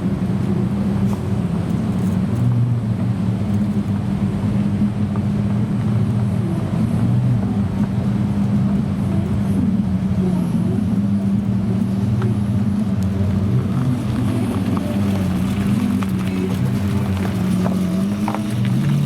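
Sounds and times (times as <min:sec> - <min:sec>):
car engine idling deep rumble: 0:00.0 - 0:19.0.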